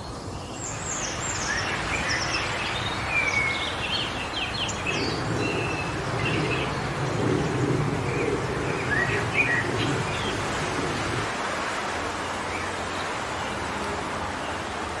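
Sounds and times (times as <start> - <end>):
wind through forest: 0.0 - 15.0
small birds chirping: 0.1 - 11.4.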